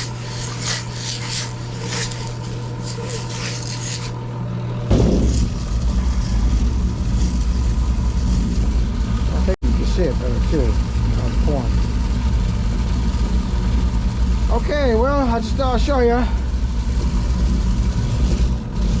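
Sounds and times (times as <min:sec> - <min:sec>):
grit scraping in tumbler barrel: 0:00.0 - 0:04.2, 0:04.9 - 0:11.9, 0:14.5 - 0:19.0
steady low hum: 0:00.0 - 0:19.0
low rumble: 0:04.8 - 0:19.0.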